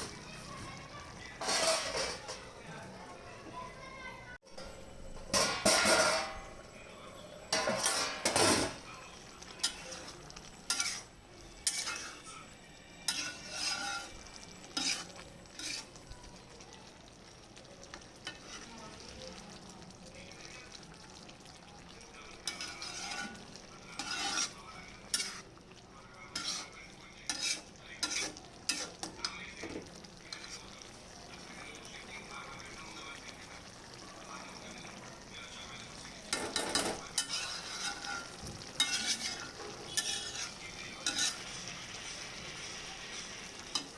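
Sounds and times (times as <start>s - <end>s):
vegetables sizzling in a pan: 0.0s - 2.7s, 4.4s - 43.9s
spatula scraping a pan: 1.4s - 2.4s, 5.3s - 6.4s, 7.5s - 8.8s, 9.6s - 16.0s, 18.2s - 18.8s, 22.4s - 25.6s, 26.3s - 29.2s, 30.3s - 30.7s, 36.3s - 43.9s.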